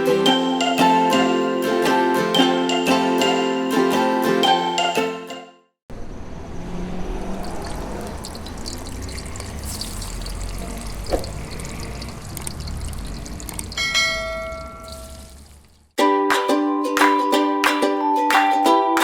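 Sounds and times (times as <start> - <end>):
water running: 7.4 - 16.0
bell-like chime: 13.8 - 15.2.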